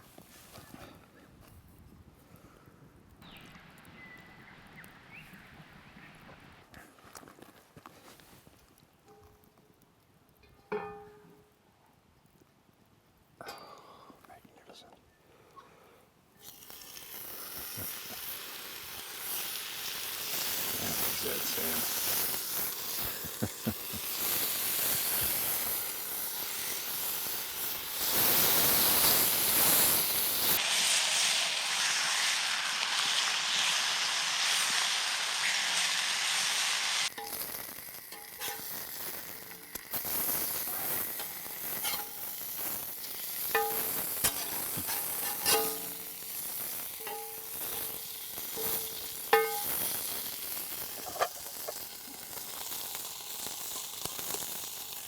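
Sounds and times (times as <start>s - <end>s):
food sizzling in a pan: 16.4s - 55.0s
metal utensil scraping a pan: 37.1s - 51.8s.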